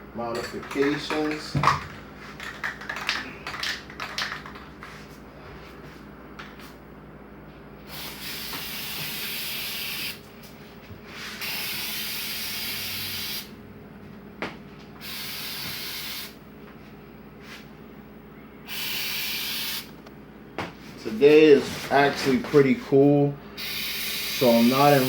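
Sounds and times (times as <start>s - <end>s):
aerosol can spraying: 7.9s - 10.2s, 11.4s - 13.5s, 15.0s - 16.4s, 18.7s - 19.9s, 23.6s - 25.0s.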